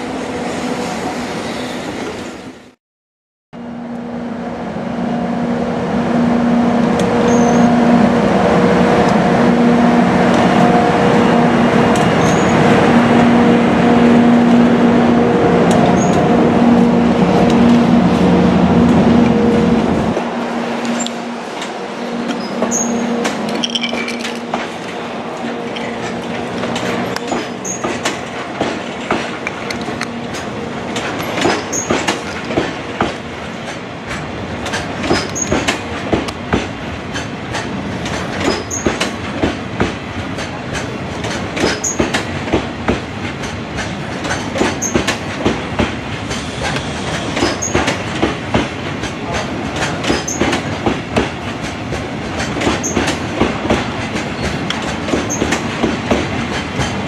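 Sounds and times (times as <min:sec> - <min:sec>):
train wheels clicking over rail joints: 0:20.8 - 0:57.0.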